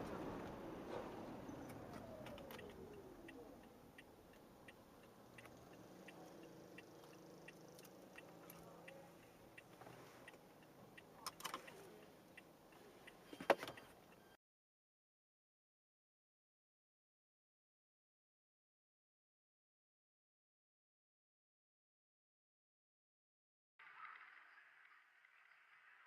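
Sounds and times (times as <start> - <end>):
faint vehicle noise: 0.0 - 14.4
soft regular ticking: 1.4 - 14.4.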